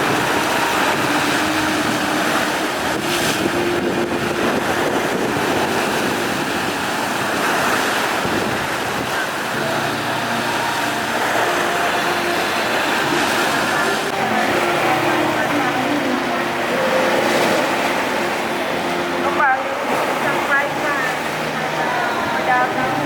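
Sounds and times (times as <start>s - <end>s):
wind blowing across microphone: 0.0s - 10.2s
heavy waves: 0.0s - 23.0s.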